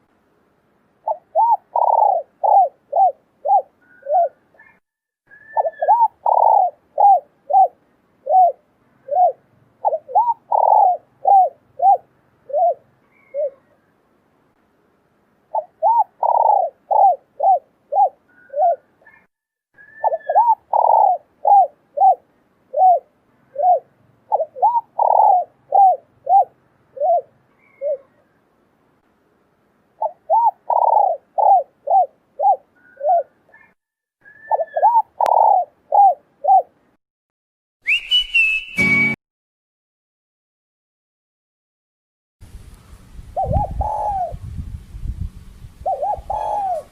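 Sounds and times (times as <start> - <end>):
dove cooing: 1.0 - 13.8, 15.5 - 28.3, 30.0 - 36.8, 43.4 - 44.5, 45.8 - 46.9.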